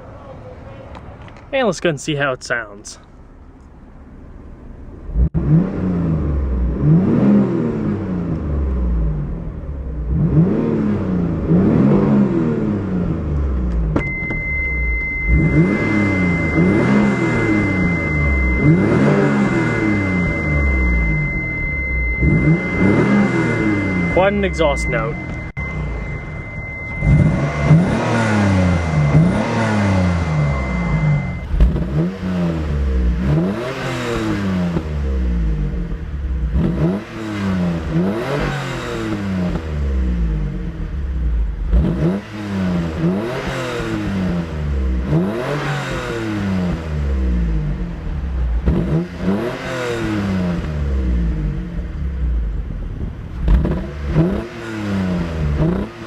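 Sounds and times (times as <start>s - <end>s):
car engine revving: 2.5s - 56.0s
steady high beep: 14.0s - 32.2s.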